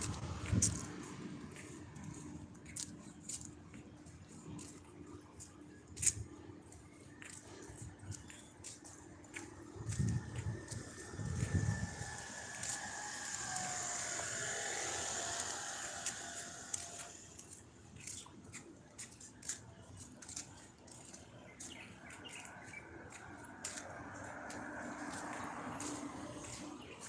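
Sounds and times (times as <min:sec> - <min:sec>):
birds chirping: 0:13.5 - 0:27.0.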